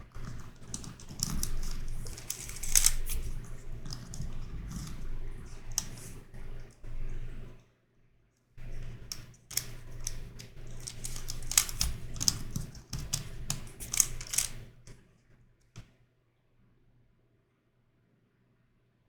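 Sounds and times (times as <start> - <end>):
twisty puzzle clicking: 0.0 - 6.2, 8.9 - 14.8.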